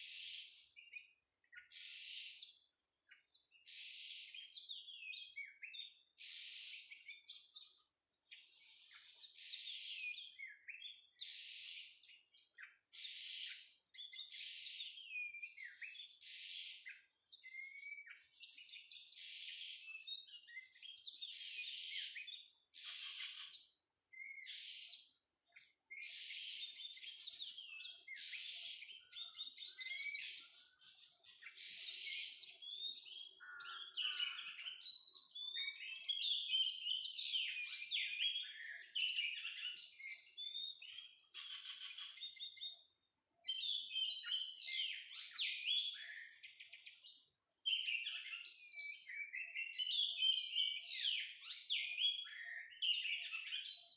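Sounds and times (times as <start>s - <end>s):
bird singing whistled phrases: 16.8s - 19.1s, 19.8s - 24.6s, 26.6s - 42.8s, 43.5s - 53.9s.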